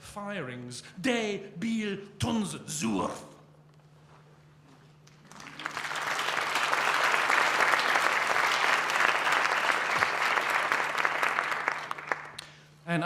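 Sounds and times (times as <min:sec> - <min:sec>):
audience applauding: 0:05.1 - 0:12.4.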